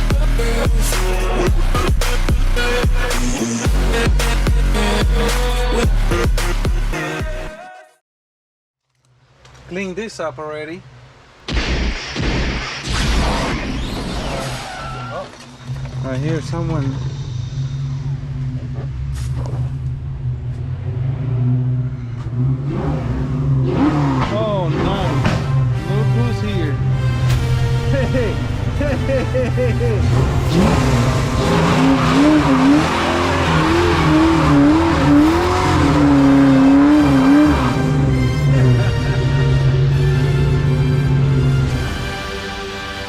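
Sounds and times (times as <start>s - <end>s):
car engine: 9.0s - 43.0s
car tires squealing: 13.8s - 18.5s, 30.0s - 37.8s
car engine idling: 15.4s - 23.6s.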